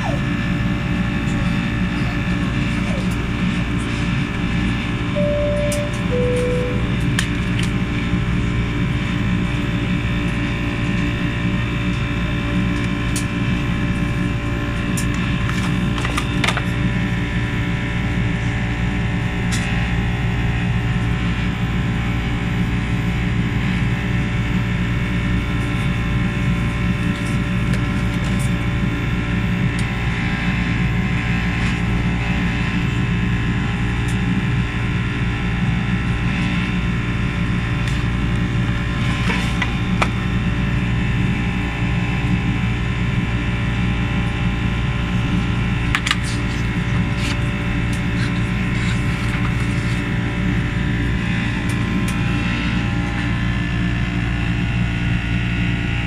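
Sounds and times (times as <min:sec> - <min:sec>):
aircraft cabin engine rumble: 0:00.0 - 0:07.8
steady hums: 0:05.1 - 0:07.3.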